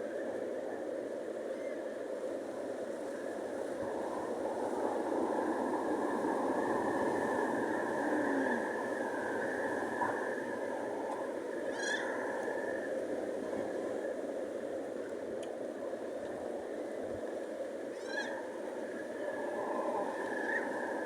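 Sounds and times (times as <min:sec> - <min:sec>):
seabird calls: 0:11.6 - 0:12.8, 0:17.9 - 0:18.6.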